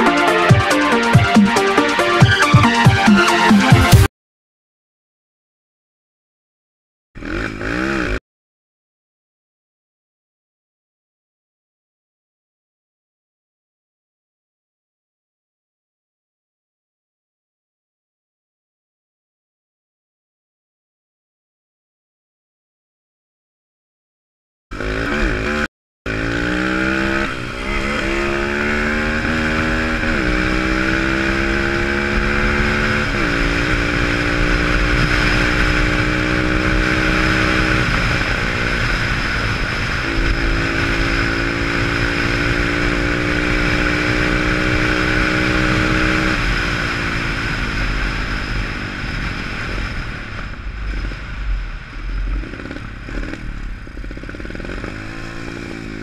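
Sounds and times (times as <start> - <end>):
motorbike engine revving: 7.2 - 8.2, 24.7 - 56.0
steady rushing noise: 45.5 - 56.0.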